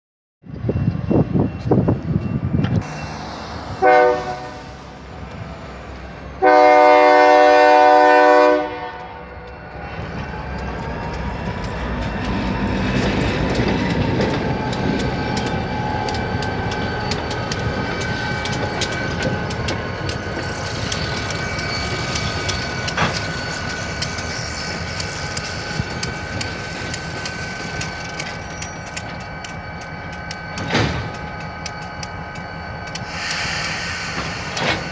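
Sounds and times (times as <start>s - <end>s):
train rumbling: 0.4s - 34.9s
train horn blasts: 3.7s - 5.0s, 6.4s - 9.6s
wheels clacking over rail joints: 9.5s - 34.9s.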